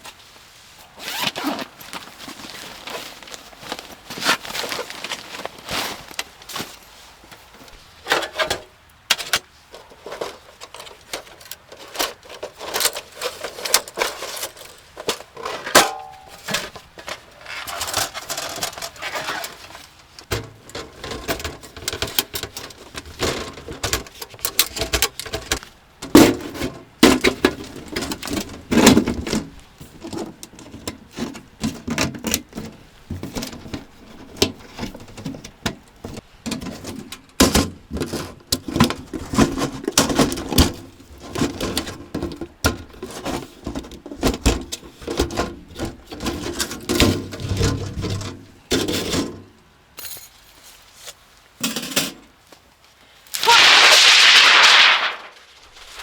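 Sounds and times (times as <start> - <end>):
gear clicking and rustling: 9.2 - 25.7.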